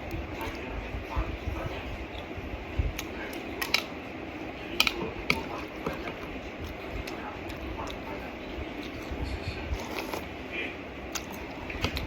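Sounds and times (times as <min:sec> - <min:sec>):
chewing and slurping noodles: 0:04.8 - 0:10.4.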